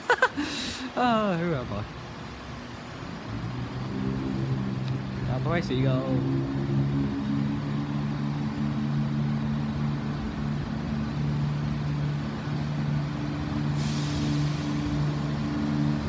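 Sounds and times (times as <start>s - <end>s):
diesel train engine idling: 0.0s - 16.0s
air hiss: 13.6s - 15.9s.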